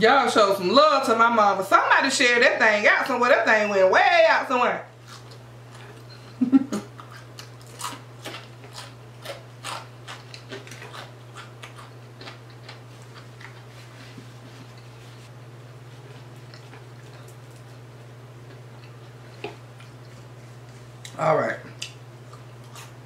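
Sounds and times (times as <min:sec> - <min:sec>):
person chewing: 0:05.0 - 0:15.2, 0:16.0 - 0:21.2, 0:21.8 - 0:23.0.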